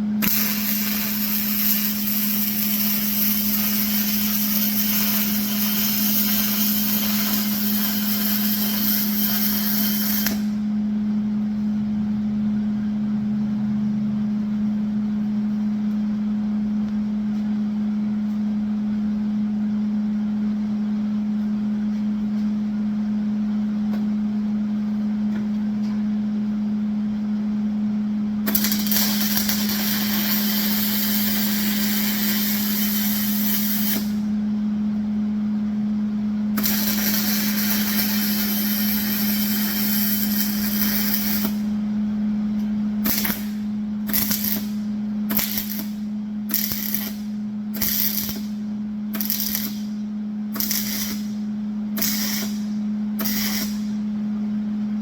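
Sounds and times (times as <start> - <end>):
steady low hum: 0.0 - 55.0
crackling welding: 0.2 - 10.6, 28.5 - 34.3, 36.6 - 41.8, 43.0 - 54.0.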